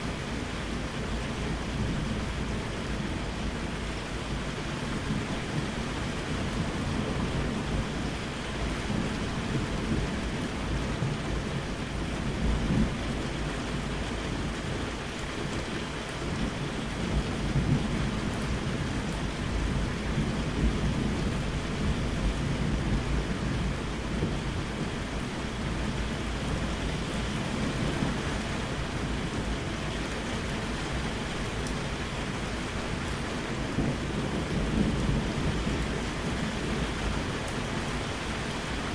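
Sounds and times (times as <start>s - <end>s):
steady rain falling: 0.0s - 38.9s
rolling thunder: 16.3s - 38.9s.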